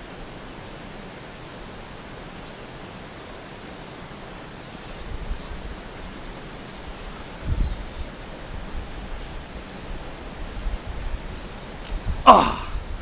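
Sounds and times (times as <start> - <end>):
outdoor hiss: 0.0 - 13.0
wind rumbling on microphone: 4.8 - 13.0.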